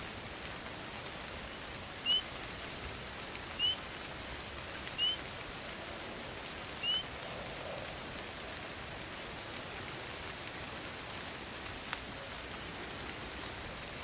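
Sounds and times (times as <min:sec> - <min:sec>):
steady rain: 0:00.0 - 0:14.0
bird chirping: 0:02.0 - 0:02.3, 0:03.6 - 0:03.8, 0:05.0 - 0:05.2, 0:06.8 - 0:07.1.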